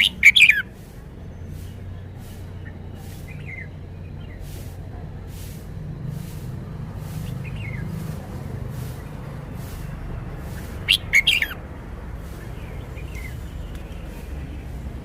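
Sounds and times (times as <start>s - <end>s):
bulbul singing whistled notes: 0.0s - 4.8s, 7.2s - 8.2s, 10.6s - 15.0s
steady low rumble: 0.0s - 15.0s.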